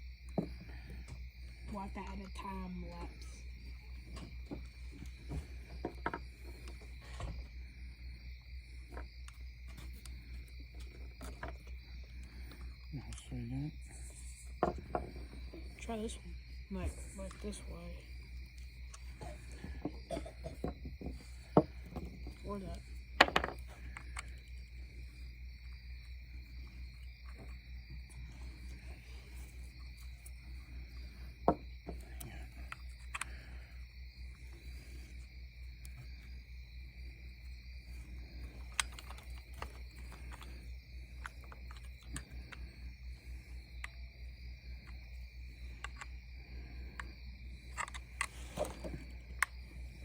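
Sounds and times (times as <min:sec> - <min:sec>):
insect chirring: 0:00.0 - 0:50.0
clicks of parts being handled: 0:47.7 - 0:49.5.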